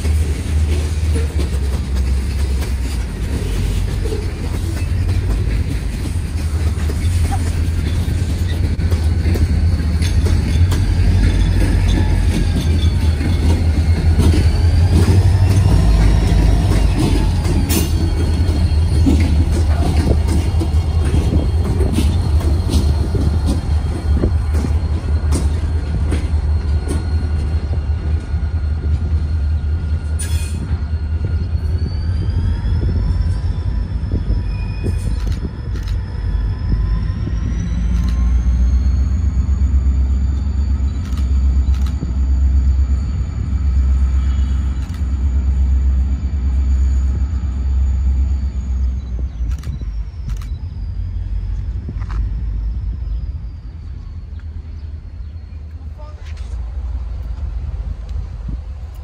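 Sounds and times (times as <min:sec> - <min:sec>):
wheels clicking over rails: 0:00.0 - 0:28.3
diesel engine low rumble: 0:00.0 - 0:59.0.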